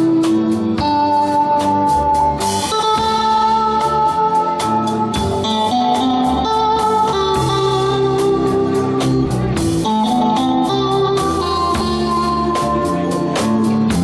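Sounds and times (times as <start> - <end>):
bass notes: 0.0 - 14.0
guitar lines: 0.0 - 14.0
steady drum beat: 0.0 - 14.0.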